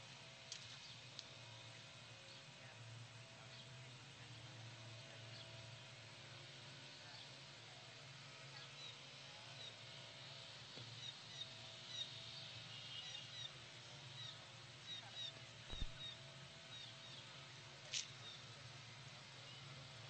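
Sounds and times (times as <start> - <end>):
low steady hum: 0.0 - 20.0
small birds chirping: 10.9 - 18.6
dull thump: 15.7 - 16.0.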